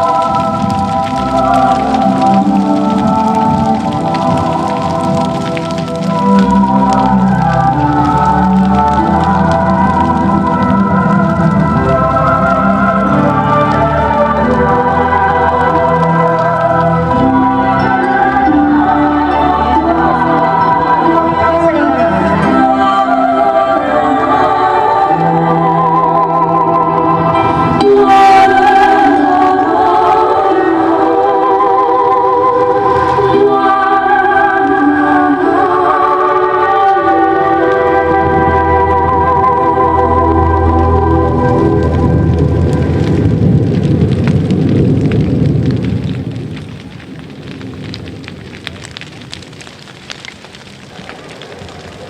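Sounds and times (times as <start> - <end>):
choir singing sustained chords: 0.0 - 43.6
low crackling hiss: 0.0 - 52.0
faint clicks: 40.6 - 52.0.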